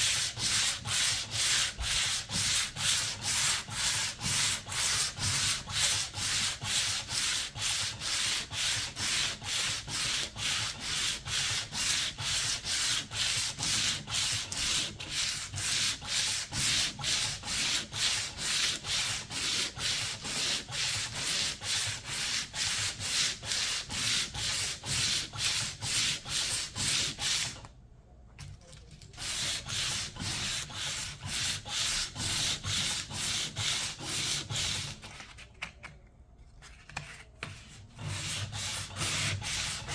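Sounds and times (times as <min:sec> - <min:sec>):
sandpaper rubbing on paint: 0:00.0 - 0:27.6, 0:29.2 - 0:35.0, 0:38.0 - 0:39.9.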